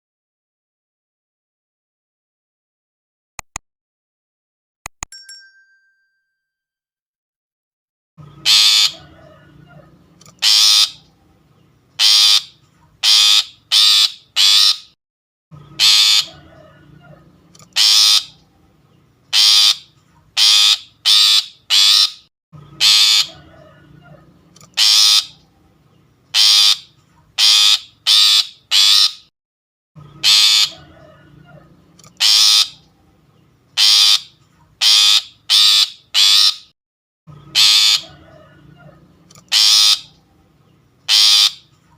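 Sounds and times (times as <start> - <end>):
bird harsh rasping calls: 8.4 - 15.0, 15.7 - 25.7, 26.3 - 29.3, 30.1 - 33.2, 33.8 - 36.7, 37.4 - 41.9.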